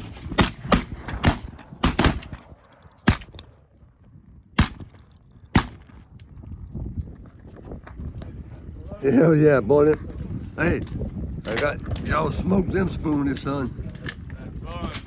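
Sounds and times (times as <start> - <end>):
shotgun blasts: 0.1 - 3.4, 4.6 - 6.0.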